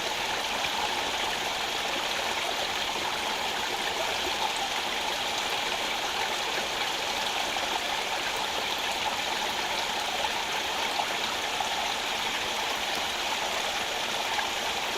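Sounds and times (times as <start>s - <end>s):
stream rushing over stones: 0.0s - 14.9s.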